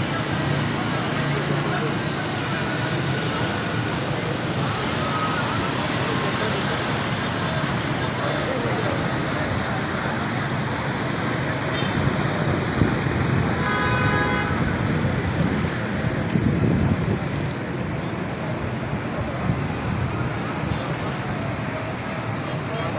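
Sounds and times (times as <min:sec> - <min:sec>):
road rumble: 0:00.0 - 0:22.9
vehicle engines running: 0:00.0 - 0:22.9
vehicle horn: 0:13.6 - 0:15.0.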